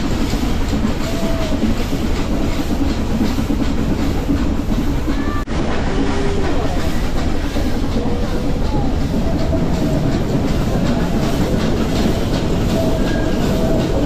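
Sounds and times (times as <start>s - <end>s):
train carriages rumbling on track: 0.0s - 14.0s.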